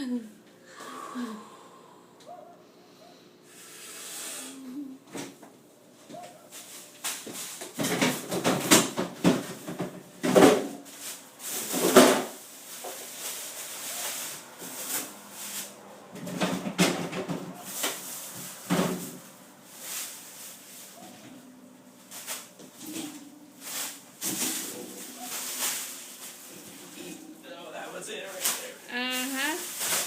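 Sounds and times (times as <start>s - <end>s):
rustling and scraping: 6.0s - 27.4s, 28.1s - 30.0s
drawers and containers clattering: 7.2s - 12.4s.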